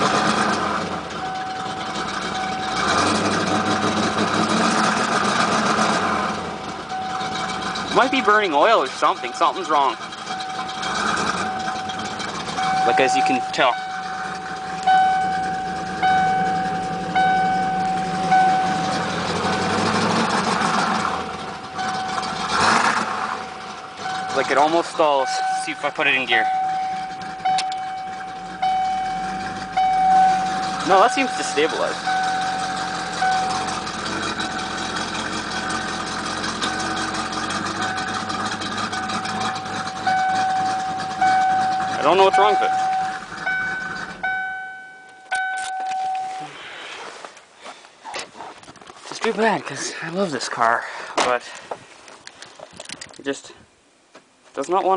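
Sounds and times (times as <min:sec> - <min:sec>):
car engine idling unevenly: 0:00.0 - 0:54.9
car warning chime: 0:01.0 - 0:03.2, 0:06.6 - 0:19.4, 0:21.3 - 0:22.5, 0:24.0 - 0:36.0, 0:36.6 - 0:46.6
high steady tone: 0:01.1 - 0:03.0, 0:06.7 - 0:19.6, 0:21.4 - 0:22.5, 0:23.4 - 0:46.6.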